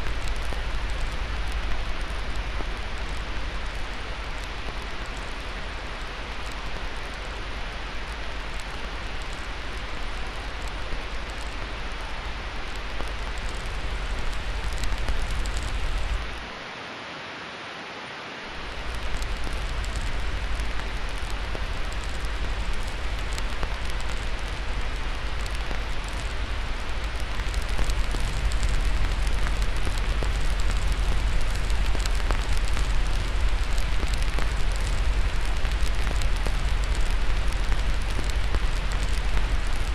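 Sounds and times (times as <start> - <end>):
wood fire crackling: 0.0 - 16.6, 18.5 - 39.9
white-noise hiss: 0.0 - 39.9
deep rumble: 18.7 - 39.9.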